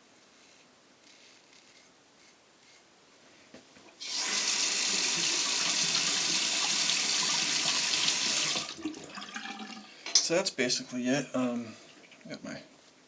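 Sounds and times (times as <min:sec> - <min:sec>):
water running into a sink: 0:04.0 - 0:09.9.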